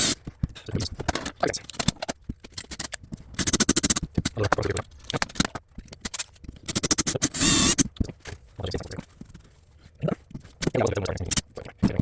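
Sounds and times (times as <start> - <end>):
clicks and scrapes: 0.0 - 9.7
small electric drill: 6.7 - 7.8.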